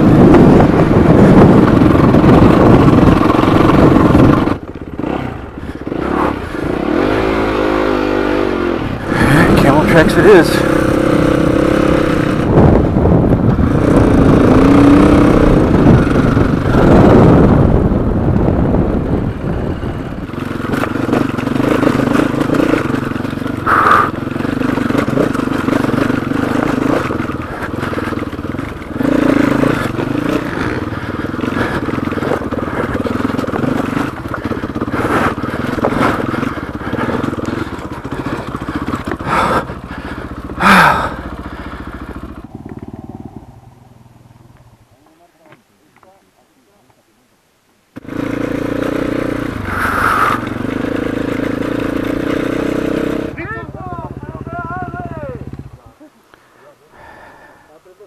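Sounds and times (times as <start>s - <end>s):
rushing wind: 0.0s - 44.9s, 48.0s - 54.4s
motorcycle engine revving: 0.0s - 46.2s, 47.9s - 56.0s
knocks and rattles from terrain: 24.6s - 41.0s.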